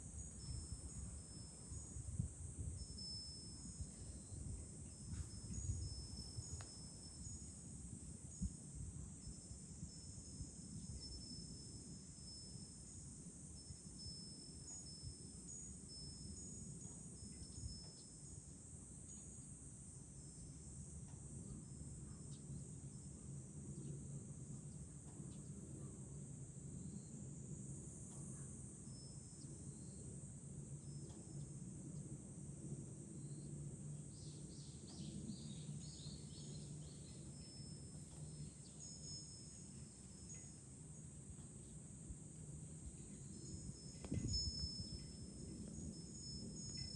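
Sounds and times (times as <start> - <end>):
low wind rumble: 0.0 - 12.3, 31.7 - 46.9
cicadas droning: 0.0 - 46.9
wind chime ringing: 2.8 - 7.8, 35.8 - 41.1, 42.9 - 46.9.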